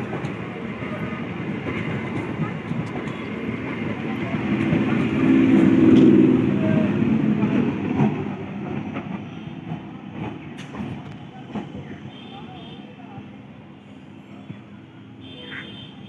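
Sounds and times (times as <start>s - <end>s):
electric train passing: 0.0s - 12.0s.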